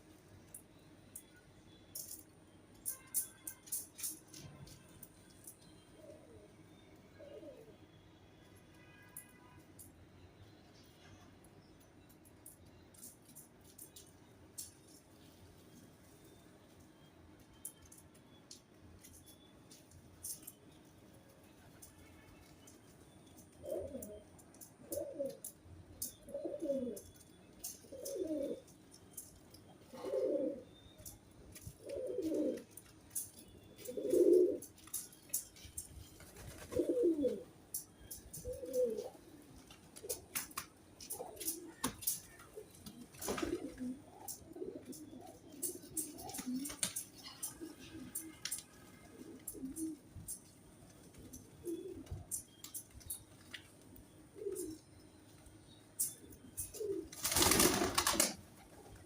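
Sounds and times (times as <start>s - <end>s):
pigeons cooing: 7.2s - 7.8s, 23.6s - 27.1s, 27.7s - 28.7s, 29.8s - 30.7s, 31.6s - 32.7s, 33.8s - 34.7s, 36.5s - 37.5s, 38.3s - 48.5s, 49.1s - 50.4s, 51.1s - 52.4s, 54.3s - 54.8s, 56.3s - 59.0s.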